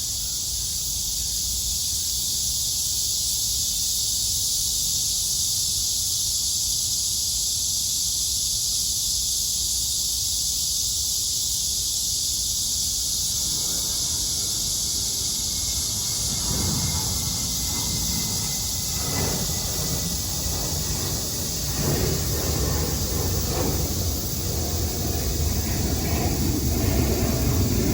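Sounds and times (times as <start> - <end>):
cicadas droning: 0.0 - 27.9
low rumble: 13.2 - 27.9.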